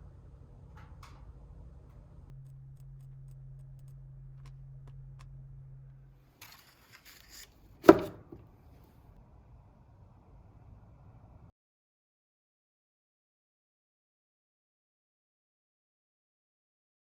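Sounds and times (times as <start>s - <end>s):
low steady hum: 0.0s - 7.2s
scraping rustle: 6.4s - 8.4s
sharp knock: 7.8s - 8.4s.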